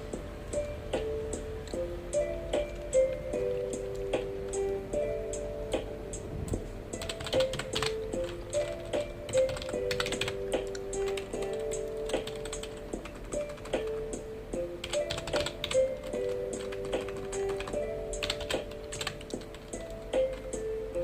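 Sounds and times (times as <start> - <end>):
soft background melody: 0.0 - 21.0
keyboard typing clicks: 6.5 - 14.1, 14.8 - 20.6.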